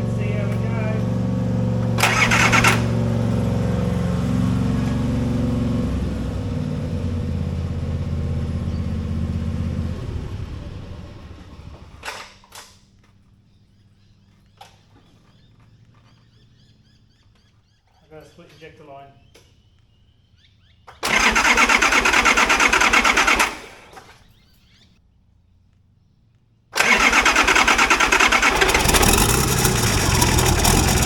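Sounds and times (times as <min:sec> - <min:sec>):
diesel engine cranking on starter: 0:00.0 - 0:13.1, 0:20.9 - 0:24.4, 0:26.8 - 0:31.0.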